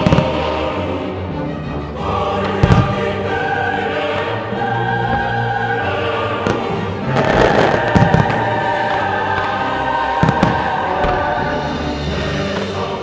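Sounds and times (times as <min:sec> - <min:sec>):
choral music: 0:00.0 - 0:13.0
fireworks bangs: 0:02.4 - 0:03.3, 0:03.9 - 0:13.0.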